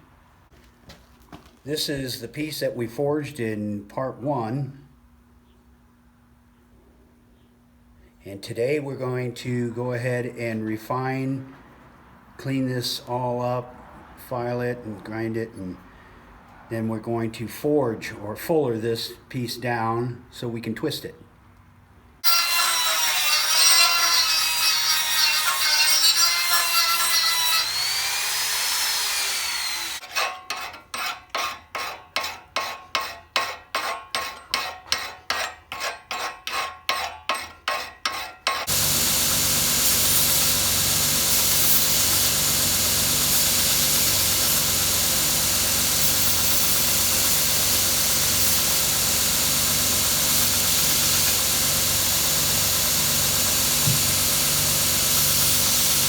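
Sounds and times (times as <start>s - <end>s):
electric grinder grinding: 22.2s - 30.0s, 38.7s - 56.0s
file rasping on steel: 22.2s - 39.3s.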